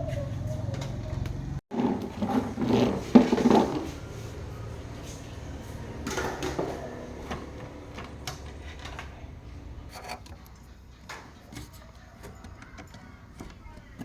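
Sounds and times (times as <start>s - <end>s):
rubbing and scraping: 1.7s - 6.1s.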